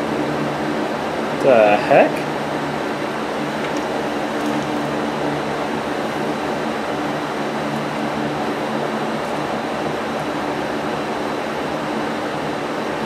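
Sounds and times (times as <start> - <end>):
mechanical whir with low hum: 0.0 - 13.0.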